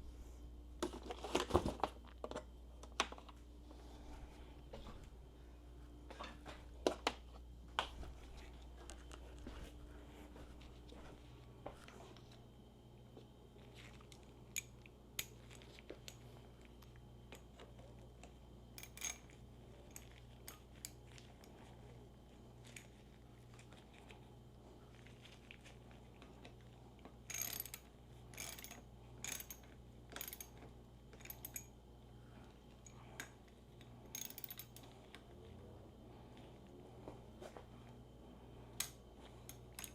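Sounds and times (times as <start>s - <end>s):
steady low hum: 0.0s - 39.9s
tool clicks and metallic clanks: 27.3s - 31.7s, 34.1s - 34.8s, 38.8s - 39.9s.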